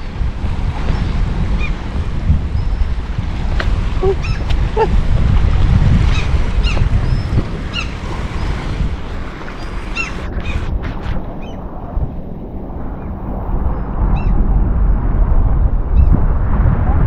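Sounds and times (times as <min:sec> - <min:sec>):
wind buffeting microphone: 0:00.0 - 0:17.0
birds calling: 0:02.6 - 0:05.2, 0:06.0 - 0:10.7.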